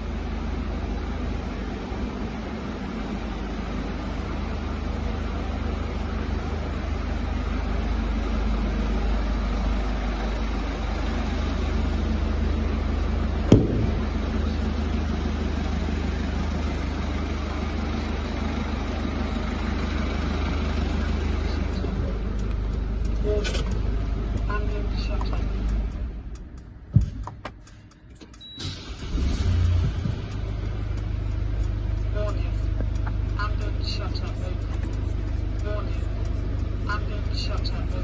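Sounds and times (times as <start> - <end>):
diesel engine idling: 0.0 - 38.0
sharp knock: 13.5 - 14.4.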